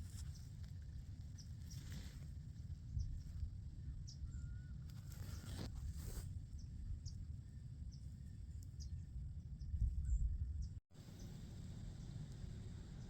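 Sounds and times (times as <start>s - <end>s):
soft rustle: 0.0s - 2.6s, 4.9s - 6.3s.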